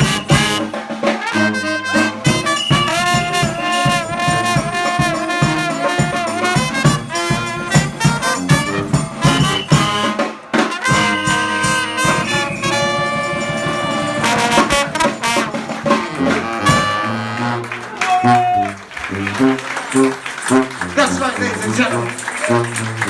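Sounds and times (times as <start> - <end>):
steady drum beat: 0.0 - 23.0
trumpets and trombone: 0.0 - 23.0.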